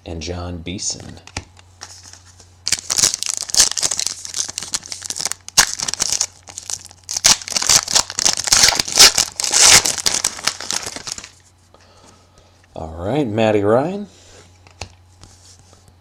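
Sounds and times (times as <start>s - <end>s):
card pack wrapper crinkling and tearing: 2.0s - 11.4s.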